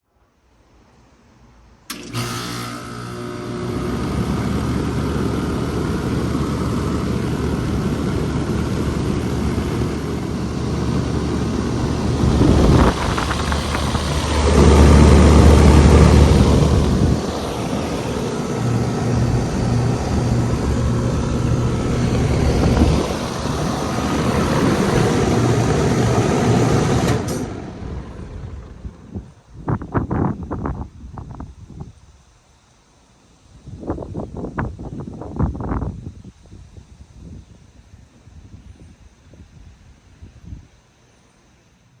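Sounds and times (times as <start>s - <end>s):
condenser fan blowing: 1.8s - 42.0s
air conditioner compressor humming: 1.9s - 30.4s.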